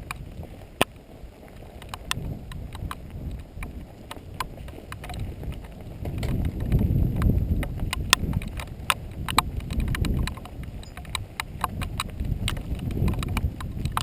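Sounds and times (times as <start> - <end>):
bike chain and frame rattling: 0.0 - 14.0
bike tyres rumbling on dirt: 0.0 - 14.0.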